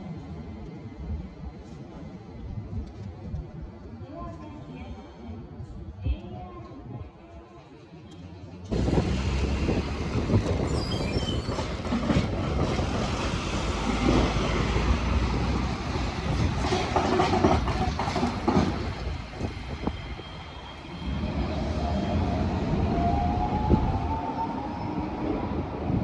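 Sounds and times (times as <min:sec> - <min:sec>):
train rumbling: 0:08.6 - 0:26.0
wheels clacking over rails: 0:08.7 - 0:20.4.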